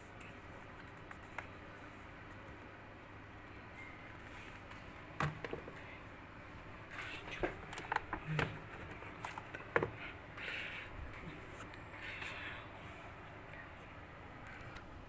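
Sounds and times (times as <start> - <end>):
faint room hiss: 0.0 - 15.0.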